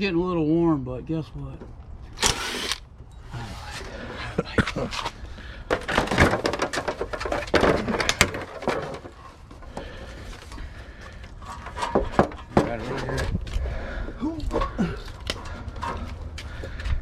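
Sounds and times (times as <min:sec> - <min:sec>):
plastic and metal parts clattering: 0:04.6 - 0:10.6, 0:11.4 - 0:13.4.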